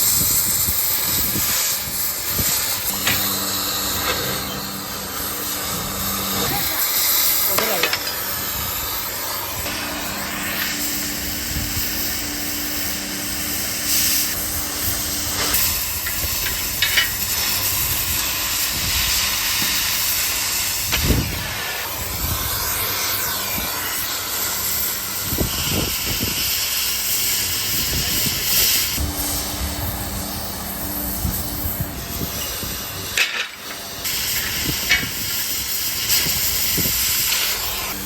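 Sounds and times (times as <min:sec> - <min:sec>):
loud steady hiss of equipment: 0:00.0 - 0:38.0
machine hum: 0:02.0 - 0:18.6, 0:29.0 - 0:34.7.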